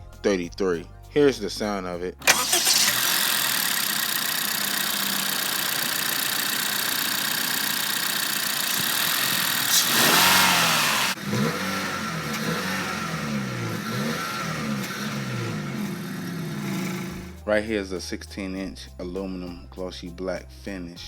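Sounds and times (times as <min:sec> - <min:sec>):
car engine running and revving: 0:02.2 - 0:17.4.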